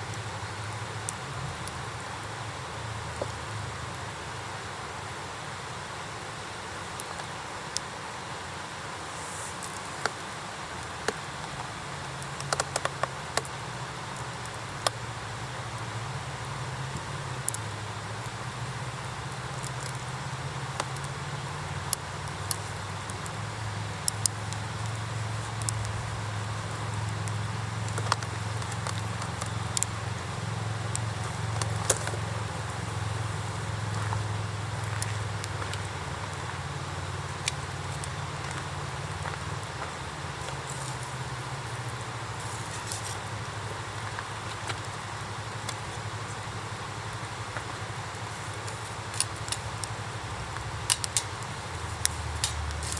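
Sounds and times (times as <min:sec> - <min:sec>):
campfire crackling and popping: 0:00.0 - 0:52.9
steady hiss: 0:00.0 - 0:52.9.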